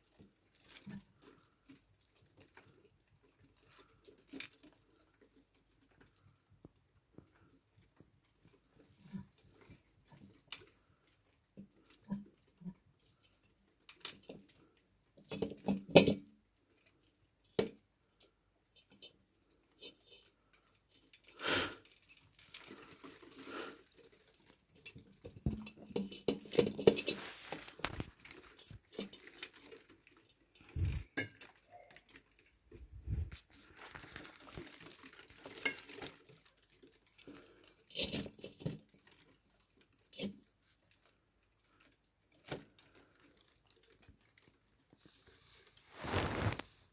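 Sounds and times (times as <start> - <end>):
cat scuffling and scratching: 17.7 - 31.6, 42.2 - 46.9
light clattering and knocks: 24.0 - 32.5.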